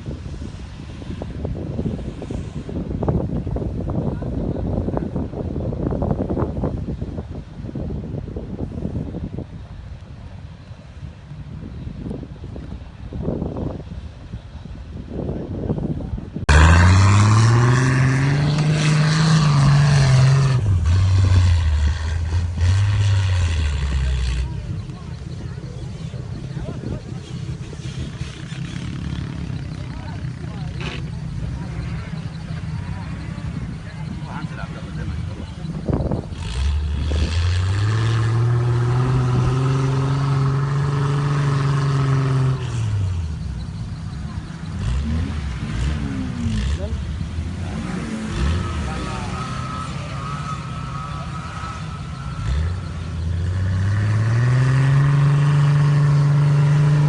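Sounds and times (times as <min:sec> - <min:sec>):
off-road engine revving hard: 0:16.4 - 0:57.0.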